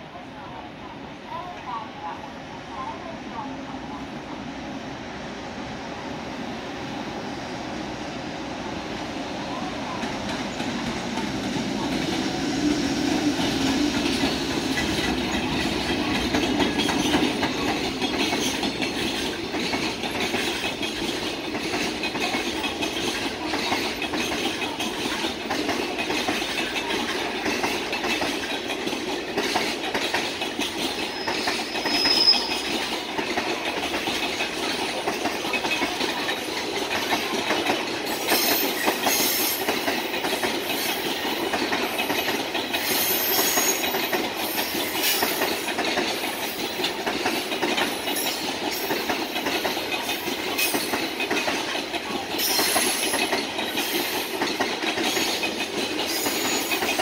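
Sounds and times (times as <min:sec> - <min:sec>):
freight train wheels rumbling: 0:00.0 - 0:57.0
clickety-clack over rail joints: 0:08.7 - 0:57.0
high wheel squeal: 0:31.0 - 0:32.7.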